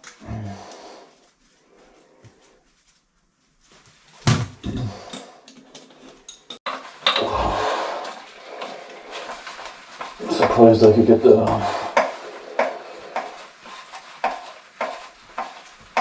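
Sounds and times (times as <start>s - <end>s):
tools knocking and clattering: 4.3s - 7.2s.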